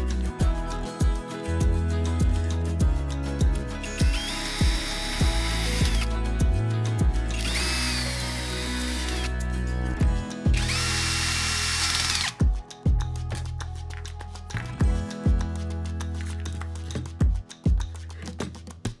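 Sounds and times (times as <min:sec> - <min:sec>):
background music with beat: 0:00.0 - 0:19.0
power tool motor whining: 0:03.8 - 0:06.2, 0:07.3 - 0:09.4, 0:10.6 - 0:12.4.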